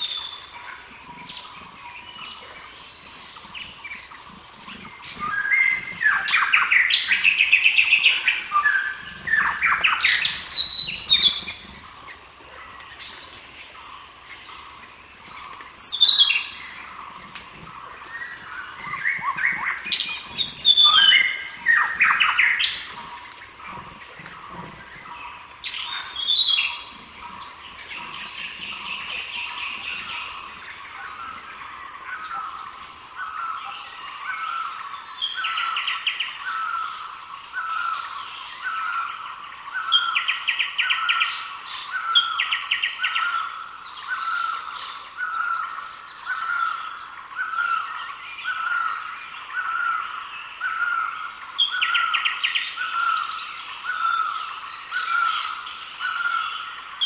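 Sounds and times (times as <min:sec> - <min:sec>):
bird trills: 0:14.5 - 0:36.9.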